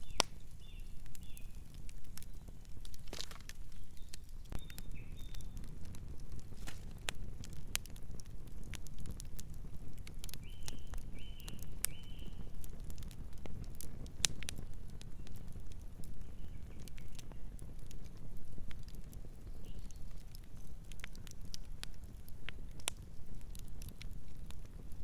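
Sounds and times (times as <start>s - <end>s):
bird chirping: 0.0s - 1.6s, 3.7s - 5.6s
wood fire crackling: 0.0s - 25.0s.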